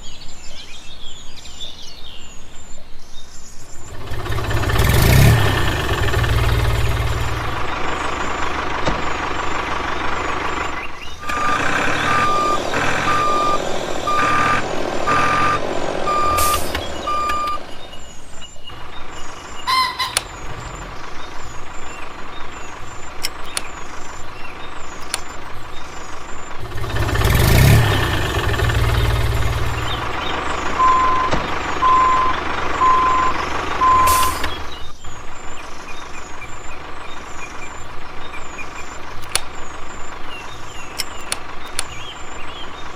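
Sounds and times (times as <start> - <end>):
vehicle engine running: 3.8 - 42.9
reversing alarm beeps: 11.2 - 17.6, 30.7 - 34.4.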